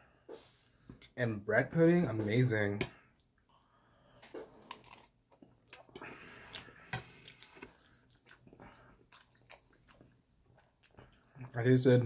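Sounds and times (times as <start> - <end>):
person chewing food: 3.2 - 11.6.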